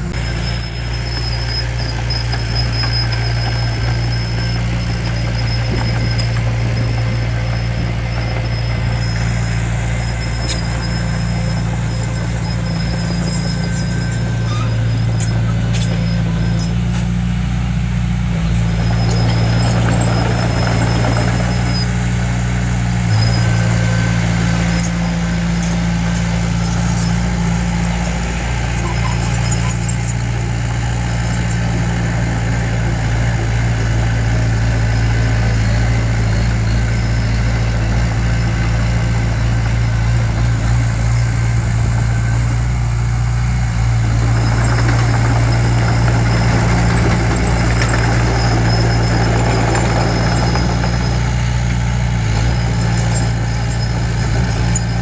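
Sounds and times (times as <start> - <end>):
diesel engine running: 0.0 - 55.0
thin high squeal: 0.1 - 17.4, 18.4 - 22.1, 23.1 - 32.2, 44.2 - 51.6, 52.2 - 55.0.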